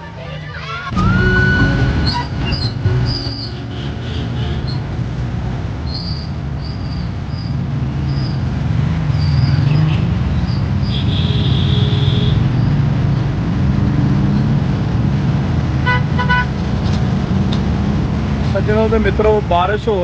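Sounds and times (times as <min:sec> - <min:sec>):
road traffic rumble: 0:00.0 - 0:20.0
vehicle horn beeping: 0:00.9 - 0:05.0, 0:10.9 - 0:12.5, 0:15.8 - 0:16.6.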